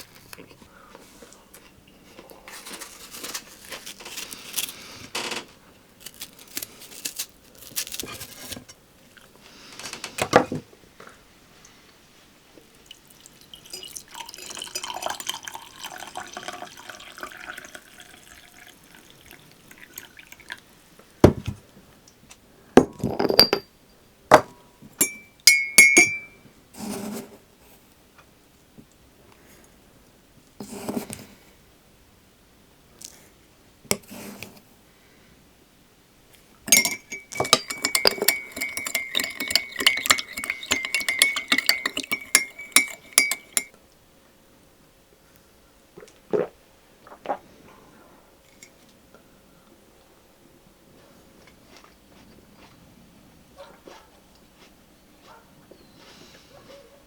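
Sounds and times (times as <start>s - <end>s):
handling and rustling: 1.6s - 10.6s
glass and crockery clinking: 13.3s - 20.5s, 22.8s - 23.7s, 24.3s - 26.4s, 36.7s - 43.7s.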